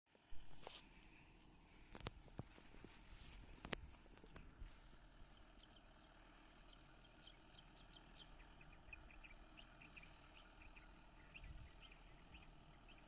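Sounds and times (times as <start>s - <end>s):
faint small-bird chirps: 5.3s - 13.0s.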